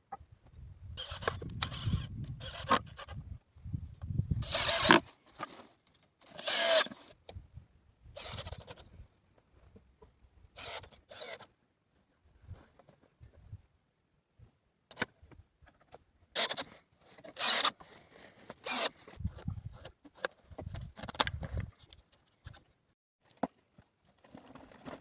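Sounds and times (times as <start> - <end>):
hand tool scraping wood: 4.4 - 7.1, 16.4 - 19.2.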